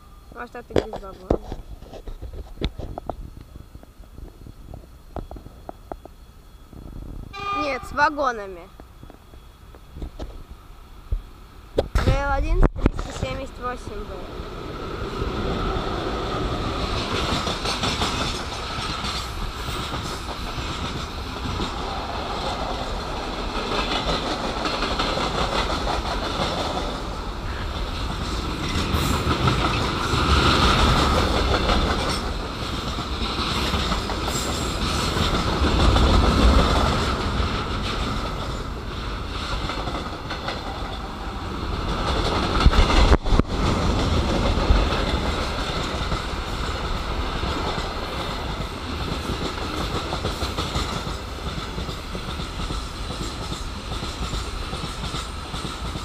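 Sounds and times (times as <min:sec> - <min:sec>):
freight train wheels clattering: 0:15.3 - 0:56.0.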